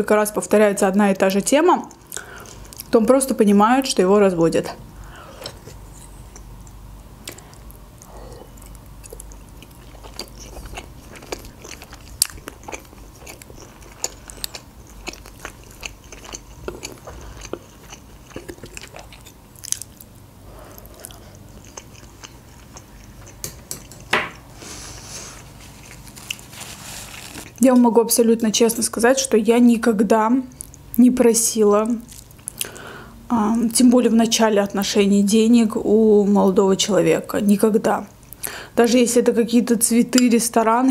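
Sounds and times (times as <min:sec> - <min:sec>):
steady low hum: 0:00.0 - 0:40.9
chewing and biting food: 0:06.3 - 0:20.1, 0:20.7 - 0:24.0.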